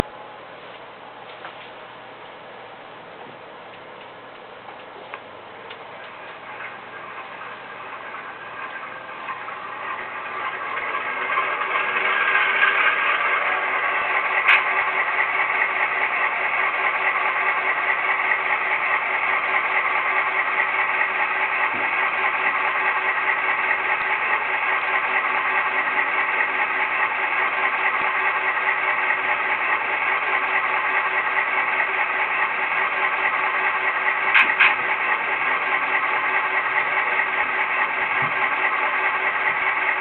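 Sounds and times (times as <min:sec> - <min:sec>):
diesel engine sound from small speaker: 0:00.0 - 0:40.0.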